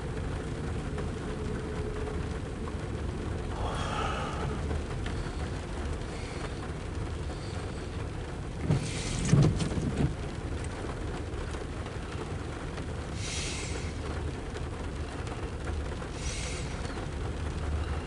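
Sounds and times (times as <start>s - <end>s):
low rumble: 0.0s - 7.2s
low thumps and crackle: 0.0s - 18.0s
rain falling: 0.0s - 18.0s.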